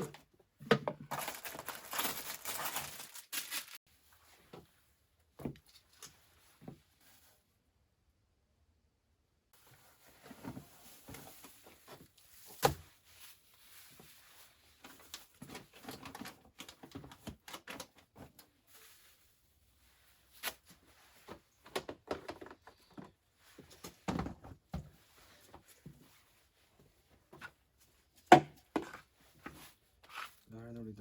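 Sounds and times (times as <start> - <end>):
objects knocking and clattering: 21.6 - 23.2.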